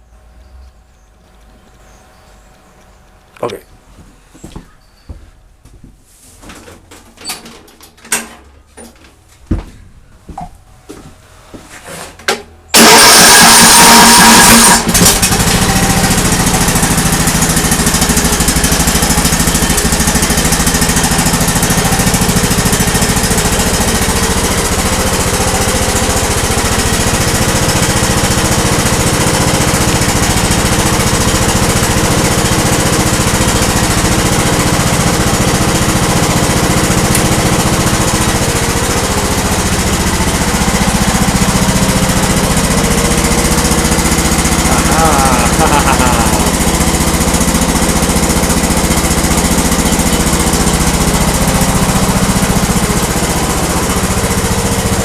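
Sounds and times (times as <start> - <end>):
lawn tractor engine running: 12.7 - 55.0.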